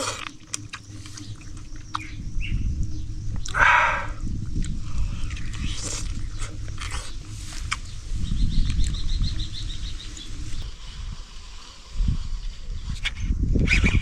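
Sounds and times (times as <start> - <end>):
low rumble: 0.7 - 10.7.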